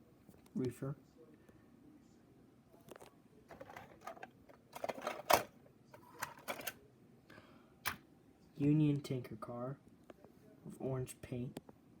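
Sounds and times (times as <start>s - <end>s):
hands handling model train cars: 2.9s - 6.8s.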